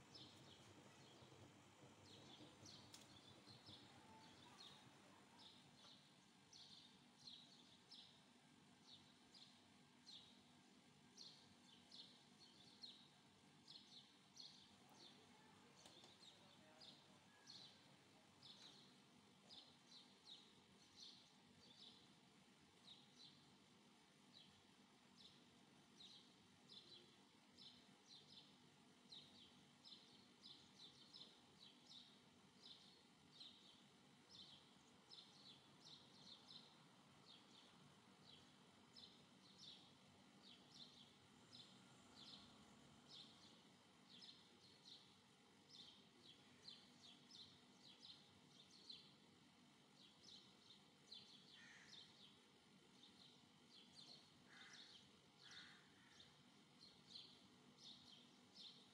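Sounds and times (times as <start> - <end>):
faint bird chirping: 0.0 - 10.5, 11.1 - 22.2, 24.2 - 58.9.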